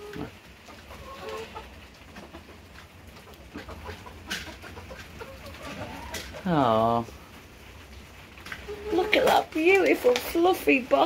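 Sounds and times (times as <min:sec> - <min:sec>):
hens clucking softly: 0:00.0 - 0:06.7.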